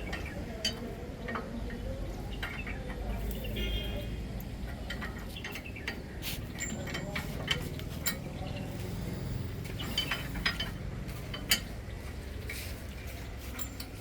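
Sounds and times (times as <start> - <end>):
metallic tool clinks: 13.5 - 14.0.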